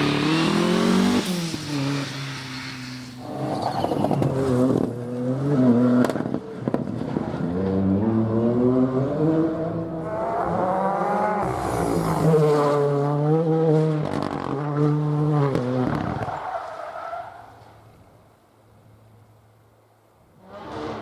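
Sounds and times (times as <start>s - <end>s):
rally car engine changing gears: 0.0s - 16.3s.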